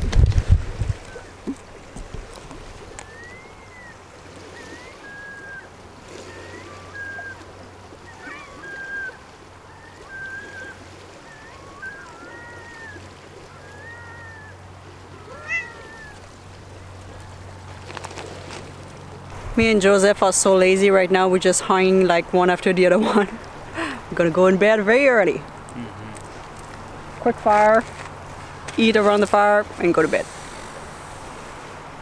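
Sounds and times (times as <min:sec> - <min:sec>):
cat mewing: 0:15.2 - 0:16.2.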